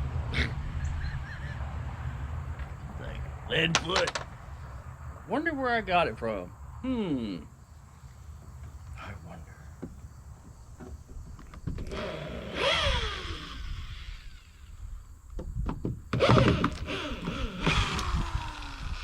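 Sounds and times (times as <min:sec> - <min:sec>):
wooden boards knocking and scraping: 0:03.7 - 0:04.3, 0:09.8 - 0:11.9, 0:15.3 - 0:17.8.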